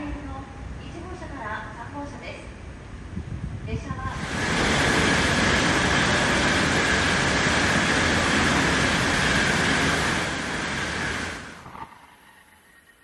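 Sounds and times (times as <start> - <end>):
train rushing past: 2.7 - 13.0.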